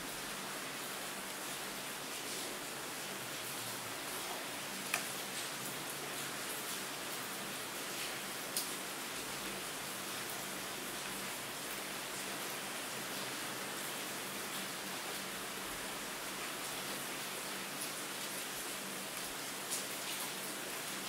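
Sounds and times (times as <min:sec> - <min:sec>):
steady rain hiss: 0:00.0 - 0:21.0
rain drop ticks: 0:04.8 - 0:05.2.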